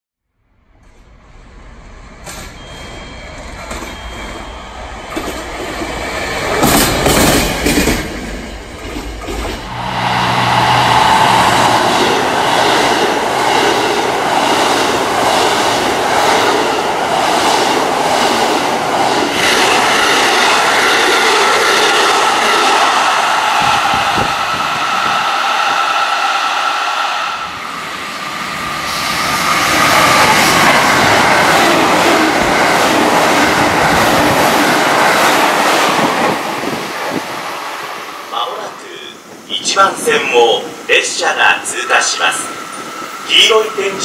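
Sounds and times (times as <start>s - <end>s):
diesel train passing: 0.4s - 44.0s.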